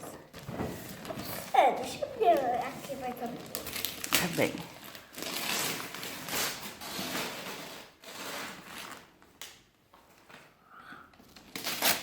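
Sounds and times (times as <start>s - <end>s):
packaging rustling and scraping: 0.2s - 9.2s, 11.2s - 12.0s.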